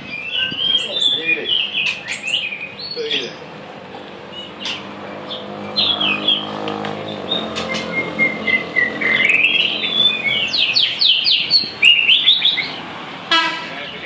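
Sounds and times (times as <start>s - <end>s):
songbird singing whistled phrases: 0.0s - 3.2s, 7.1s - 12.8s.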